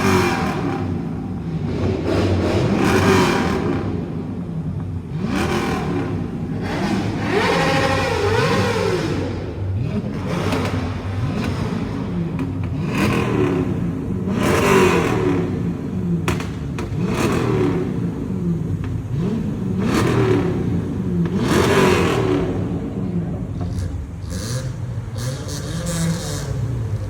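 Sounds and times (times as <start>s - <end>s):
car engines revving: 0.0s - 27.0s
sharp exhaust pops: 10.3s - 22.3s.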